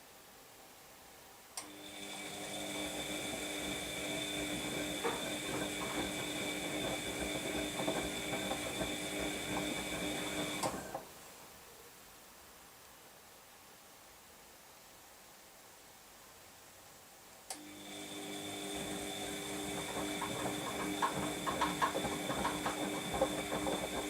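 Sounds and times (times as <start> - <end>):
washing machine motor whine: 1.6 - 11.0, 17.6 - 24.0
knocks from tumbling load: 19.7 - 24.0.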